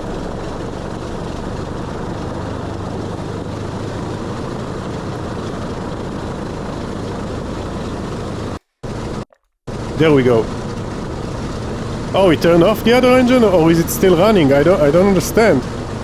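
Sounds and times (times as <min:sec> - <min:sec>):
propeller engines droning: 0:00.0 - 0:16.0.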